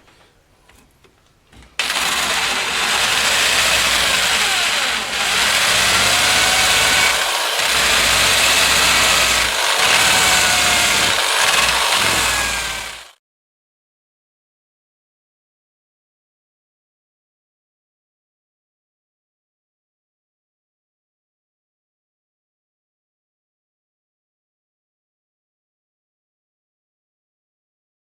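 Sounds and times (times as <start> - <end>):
loud steady machine noise: 1.8 - 13.2.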